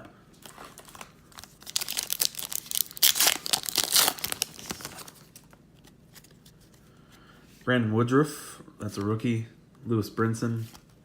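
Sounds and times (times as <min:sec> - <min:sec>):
wrapper tearing and crinkling: 0:00.4 - 0:05.5.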